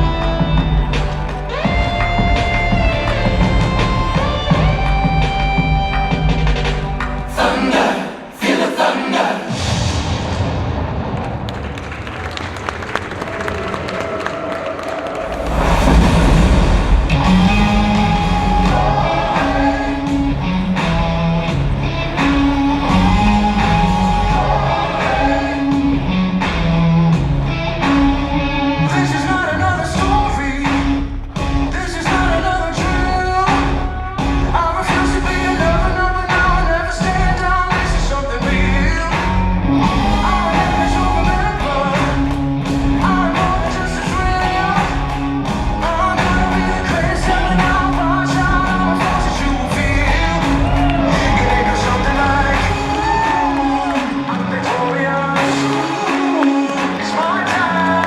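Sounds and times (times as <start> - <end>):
rock music with singing: 0.0 - 9.8, 15.4 - 58.0.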